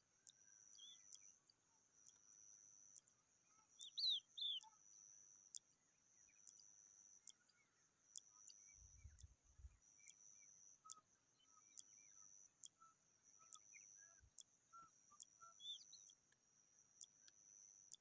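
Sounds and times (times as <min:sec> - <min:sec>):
regular ticks: 0:00.0 - 0:18.0
bird chicks chirping: 0:00.7 - 0:01.3, 0:03.8 - 0:04.7, 0:15.2 - 0:16.2.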